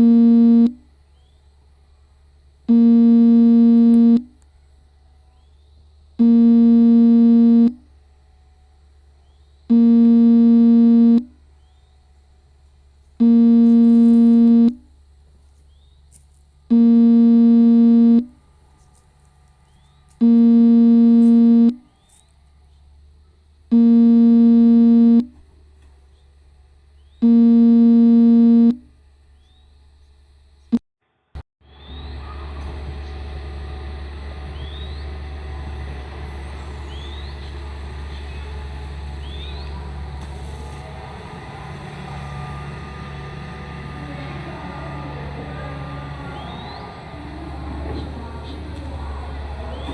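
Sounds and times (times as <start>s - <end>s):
low buzzing warning beeps: 0.0s - 0.9s, 2.7s - 4.4s, 6.2s - 7.9s, 9.7s - 11.4s, 13.2s - 14.9s, 16.7s - 18.4s, 20.2s - 21.9s, 23.7s - 25.4s, 27.2s - 28.9s
low engine hum: 0.0s - 30.7s, 31.7s - 49.9s.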